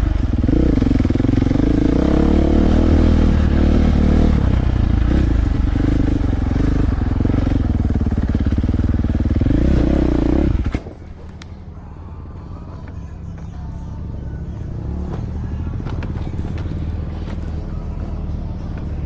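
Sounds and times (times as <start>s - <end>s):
dirt bike engine revving: 0.0s - 11.3s.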